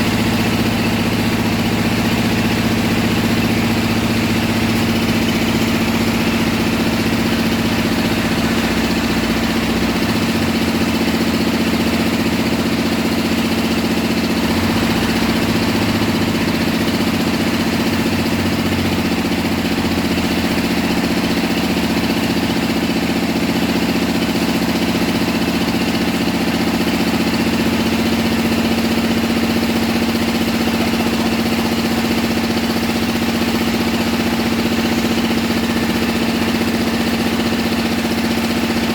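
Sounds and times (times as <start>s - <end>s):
drilling rig engine droning: 0.0s - 22.9s.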